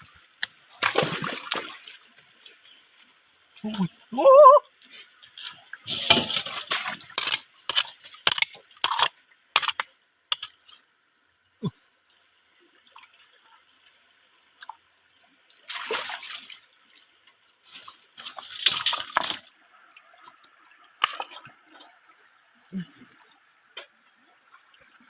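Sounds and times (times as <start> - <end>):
shallow water splashing: 0.7 - 2.8, 5.3 - 8.1, 15.6 - 17.0.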